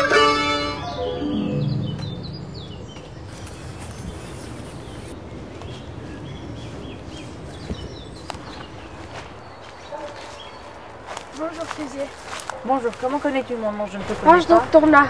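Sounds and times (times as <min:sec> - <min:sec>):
plucked-string music: 0:00.0 - 0:03.0
woodland birds chirping: 0:00.1 - 0:15.0.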